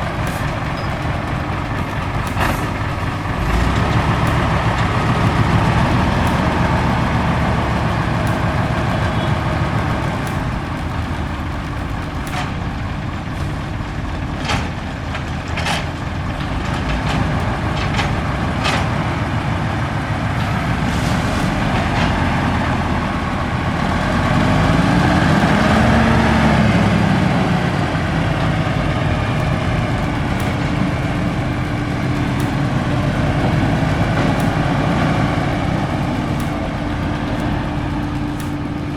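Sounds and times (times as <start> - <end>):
sharp knocks and clicks: 0.0 - 12.8, 29.4 - 38.9
diesel truck engine running: 0.0 - 38.9.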